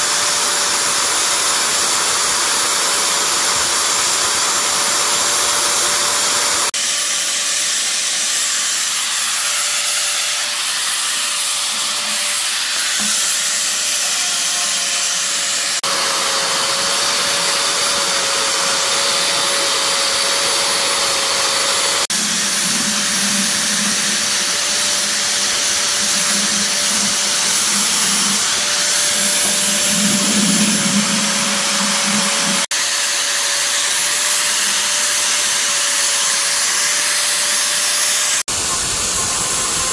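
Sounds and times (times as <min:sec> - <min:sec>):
power tool whining: 0:00.0 - 0:39.9
loud hissing rush: 0:21.8 - 0:32.7, 0:38.5 - 0:39.9.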